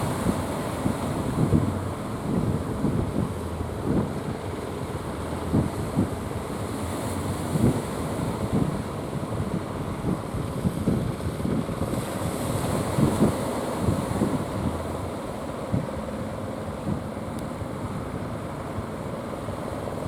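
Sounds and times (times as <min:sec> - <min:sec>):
surf washing: 0:00.0 - 0:20.0
wind buffeting microphone: 0:00.0 - 0:20.0.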